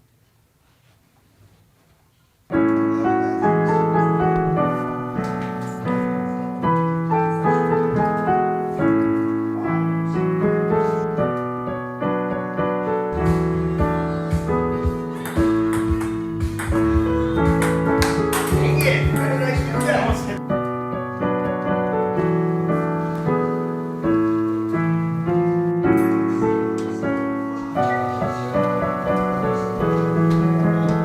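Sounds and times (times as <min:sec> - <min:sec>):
piano music: 0:02.5 - 0:31.0.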